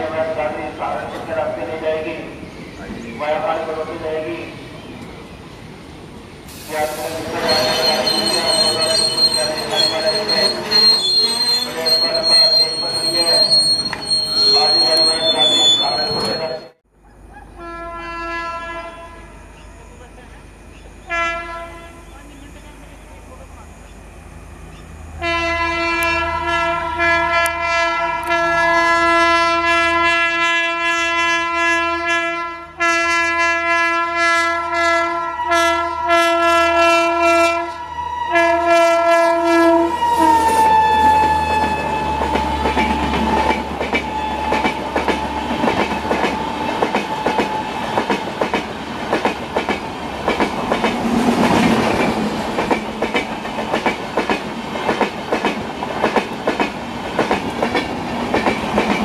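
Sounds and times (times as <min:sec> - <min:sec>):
locomotive horn blast: 0:17.6 - 0:19.4, 0:21.1 - 0:22.1, 0:25.2 - 0:43.4.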